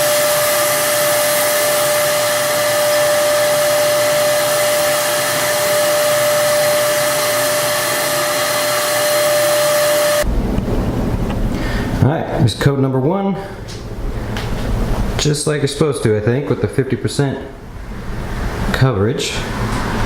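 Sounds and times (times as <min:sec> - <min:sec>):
spray gun turbine whirring: 0:00.0 - 0:12.0, 0:17.6 - 0:20.0.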